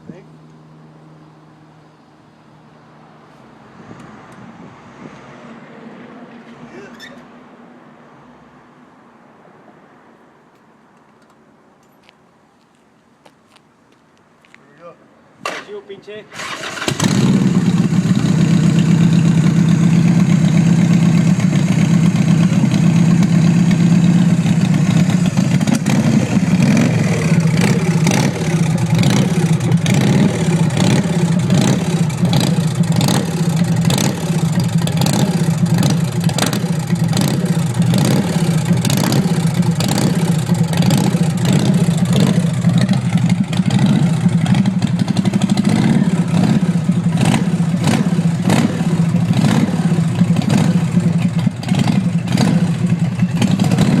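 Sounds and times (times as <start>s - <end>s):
motorcycle engine running: 16.7s - 54.0s.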